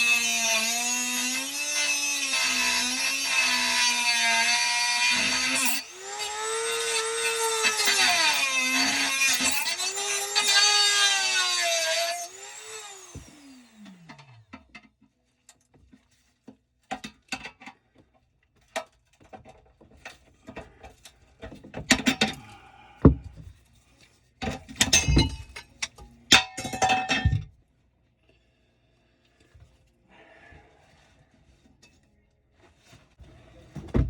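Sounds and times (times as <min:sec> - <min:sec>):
hand tools clanking on metal: 0:24.4 - 0:27.5.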